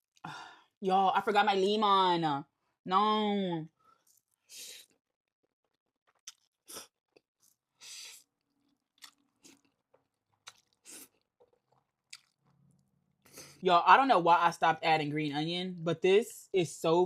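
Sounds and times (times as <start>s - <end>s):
person chewing food: 5.8s - 13.5s.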